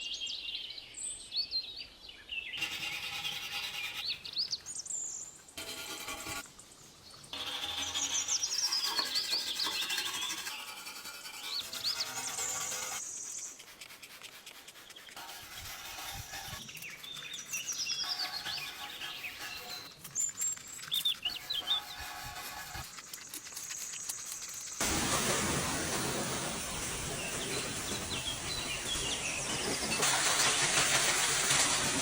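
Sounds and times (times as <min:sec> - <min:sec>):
birds chirping: 0:16.6 - 0:23.4, 0:26.0 - 0:30.0.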